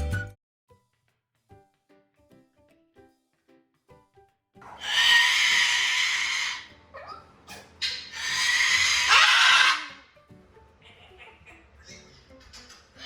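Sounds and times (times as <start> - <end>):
parrot screaming: 4.6 - 10.1
parrot sliding calls: 4.7 - 10.0.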